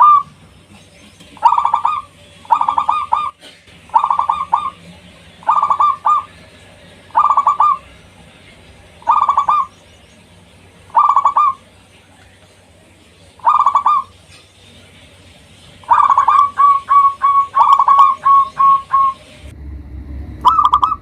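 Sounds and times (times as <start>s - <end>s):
dove cooing: 0.0s - 0.3s, 1.4s - 6.4s, 7.1s - 8.0s, 9.0s - 9.7s, 10.9s - 11.6s, 13.4s - 14.2s, 15.8s - 19.2s.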